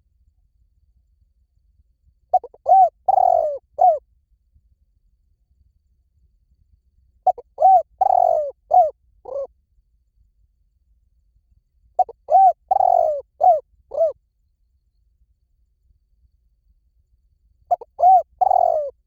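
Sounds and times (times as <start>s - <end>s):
dove cooing: 2.3s - 4.0s, 7.3s - 9.5s, 12.0s - 14.2s, 17.7s - 19.0s.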